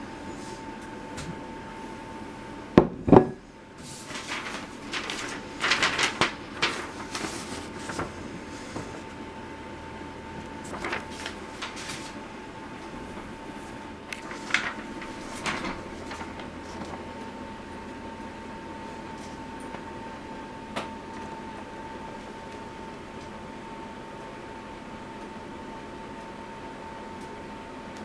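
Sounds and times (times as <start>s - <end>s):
faint high hum: 0.0s - 28.0s
rustling and clattering objects: 2.8s - 9.1s, 14.2s - 17.0s.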